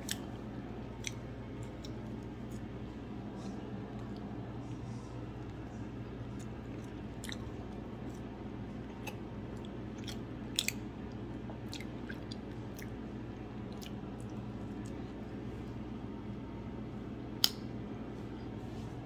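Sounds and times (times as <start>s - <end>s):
steady low hum: 0.0s - 19.0s
wet mouth clicks chewing: 1.0s - 2.7s, 6.3s - 8.3s, 8.9s - 13.0s.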